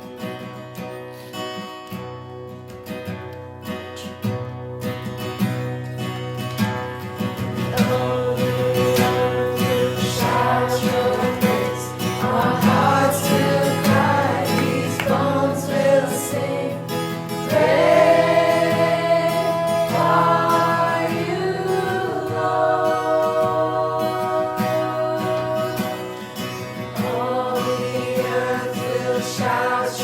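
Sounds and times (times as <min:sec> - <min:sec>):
acoustic guitar: 0:00.0 - 0:30.0
group of voices singing: 0:07.2 - 0:30.0.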